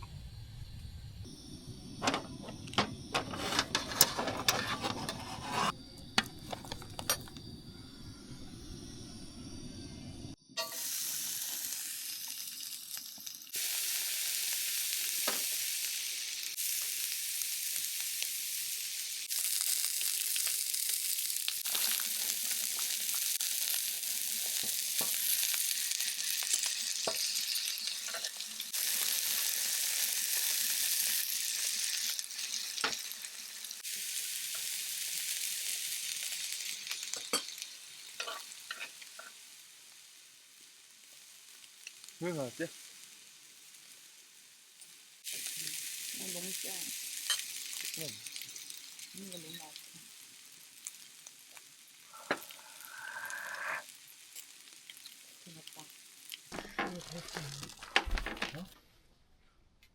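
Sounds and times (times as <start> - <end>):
food sizzling in a pan: 1.2 - 58.2
utensil scraping a pan: 3.1 - 7.1.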